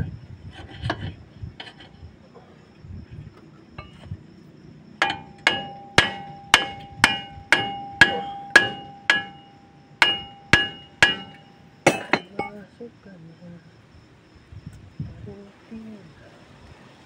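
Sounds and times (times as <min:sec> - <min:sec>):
hammer striking metal: 0:05.0 - 0:12.6.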